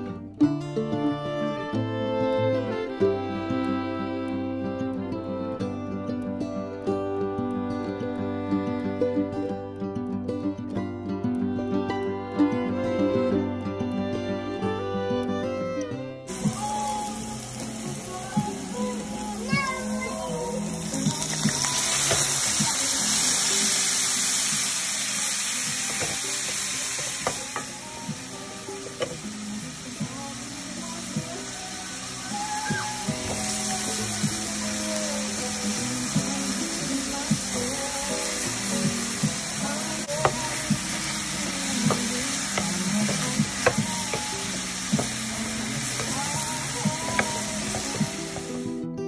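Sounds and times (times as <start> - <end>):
faint background music: 0.0 - 49.0
food sizzling in a frying pan: 16.3 - 48.9.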